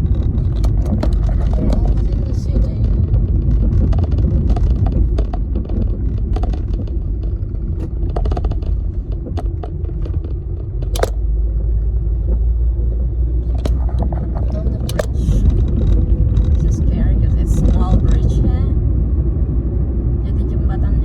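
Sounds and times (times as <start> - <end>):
small clicks and rattles: 0.0 - 11.7, 13.4 - 16.9
car road and engine rumble: 0.0 - 21.0.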